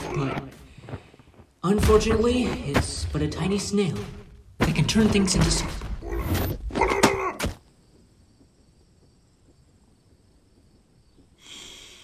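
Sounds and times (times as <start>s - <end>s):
faint hiss: 11.3s - 12.0s.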